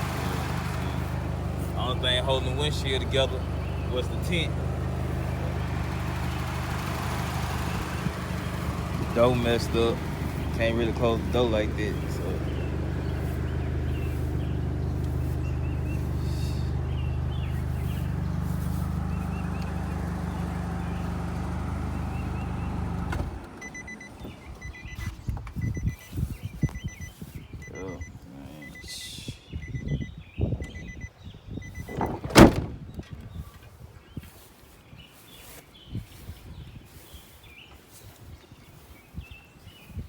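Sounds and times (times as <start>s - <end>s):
car engine idling: 0.0s - 25.0s
car warning chime beeping: 23.6s - 32.1s
loud thunk: 31.9s - 32.8s.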